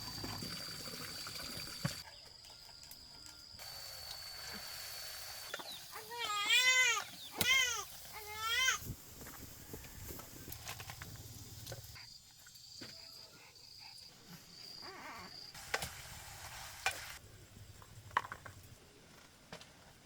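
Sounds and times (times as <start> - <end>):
food sizzling in oil: 3.6 - 9.9, 15.6 - 17.2.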